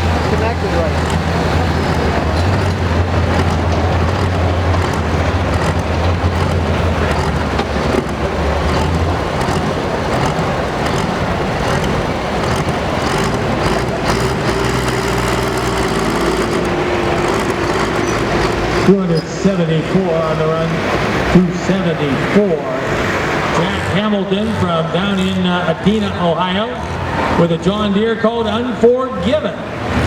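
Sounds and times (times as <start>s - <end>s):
steady rush of noise: 0.0s - 29.0s
diesel engine deep drone: 0.0s - 30.0s.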